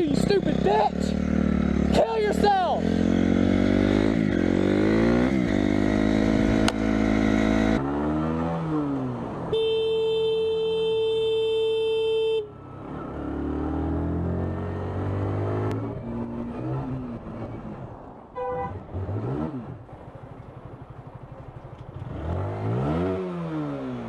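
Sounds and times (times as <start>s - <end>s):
engine revving: 0.0s - 9.3s, 12.7s - 17.8s, 18.7s - 19.8s, 22.0s - 24.0s
car horn blaring: 9.5s - 12.5s, 18.4s - 18.8s
short horn toot: 18.4s - 18.8s.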